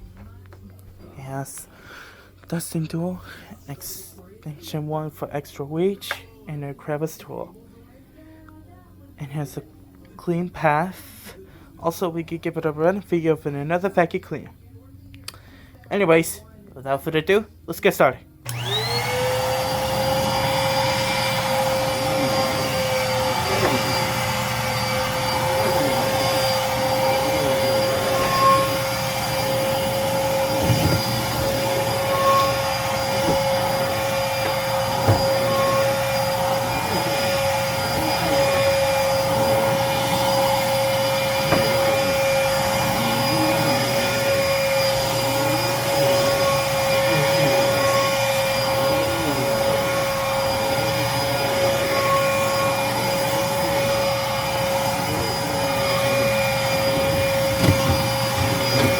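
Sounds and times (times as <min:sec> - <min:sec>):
vacuum cleaner running: 0:18.4 - 0:58.9.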